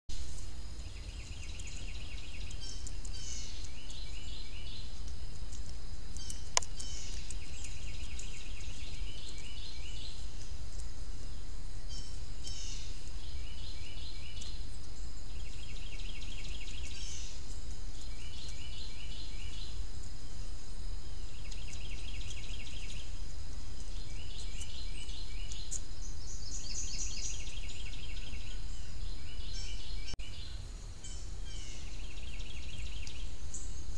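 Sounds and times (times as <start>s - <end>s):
steady low rumble: 0.1s - 4.2s
songbird singing trilled phrases: 0.8s - 5.0s, 6.2s - 19.8s, 21.0s - 23.2s, 23.8s - 33.9s.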